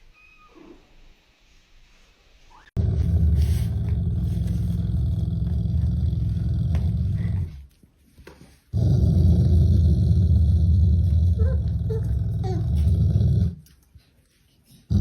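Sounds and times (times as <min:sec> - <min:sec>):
animal's loud low rumble: 0:02.8 - 0:07.6, 0:08.8 - 0:13.6.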